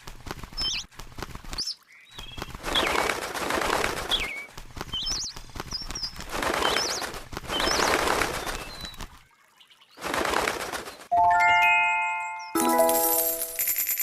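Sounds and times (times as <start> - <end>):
rustling noise: 0.0 - 9.3
bird chirping: 0.5 - 0.9, 1.5 - 3.1, 4.1 - 9.0
bright ringing chime: 11.2 - 14.0.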